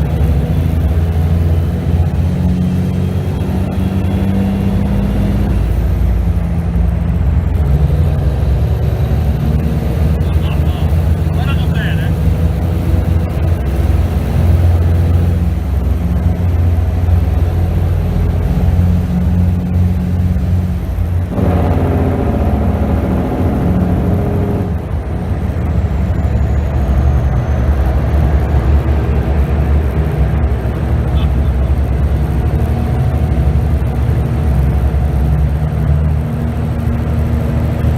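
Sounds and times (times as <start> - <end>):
diesel truck engine drone: 0.0 - 37.9.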